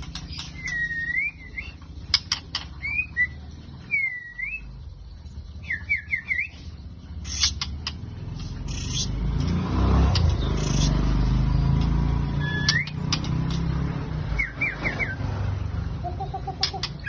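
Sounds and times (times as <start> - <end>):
bird chirping: 0.0 - 17.0
passing vehicle engine rumble: 0.0 - 17.0
sharp clicks: 12.6 - 13.7.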